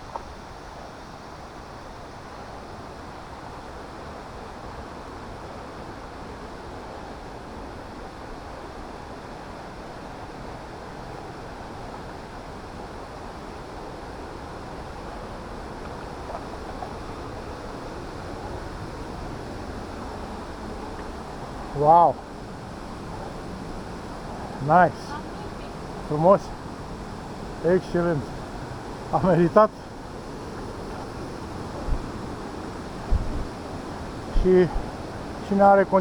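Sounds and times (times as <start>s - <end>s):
waterfall rushing into pool: 11.4s - 36.0s.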